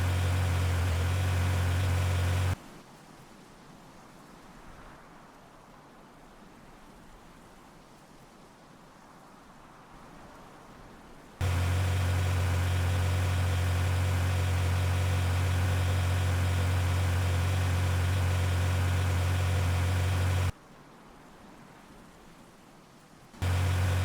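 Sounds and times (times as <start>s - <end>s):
vehicle engine idling: 0.0s - 2.6s, 11.4s - 20.5s, 23.4s - 24.0s
faint hiss: 22.8s - 24.0s.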